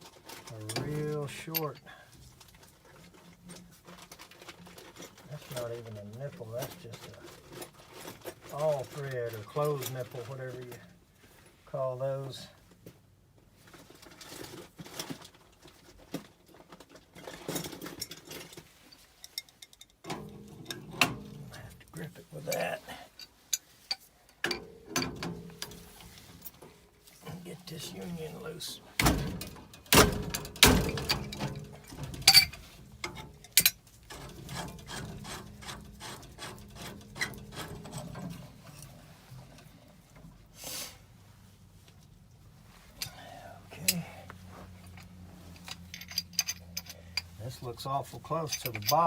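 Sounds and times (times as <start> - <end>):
hand tools rustling and scraping: 0.0 - 12.7, 13.4 - 49.0
sharp metal knocks: 29.0 - 33.8
wrench scraping clicks: 32.2 - 38.3.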